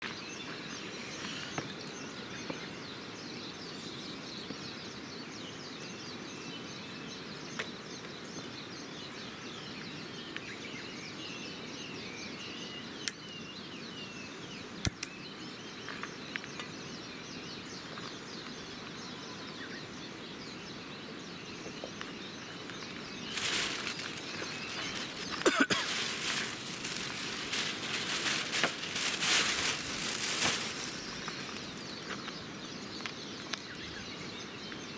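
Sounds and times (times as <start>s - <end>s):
small birds chirping: 0.0s - 34.9s
steady background hiss: 16.7s - 34.6s
loud rustling: 23.3s - 32.0s.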